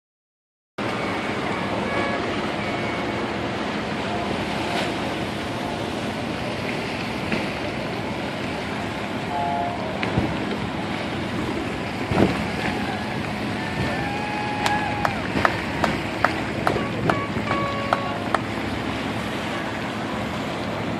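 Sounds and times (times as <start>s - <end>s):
water and boat sounds: 0.8s - 20.9s
wind noise on microphone: 12.0s - 18.2s.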